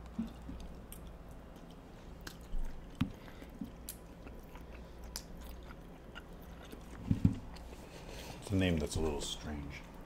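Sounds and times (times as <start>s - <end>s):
wet chewing clicks and smacks: 0.0s - 7.8s.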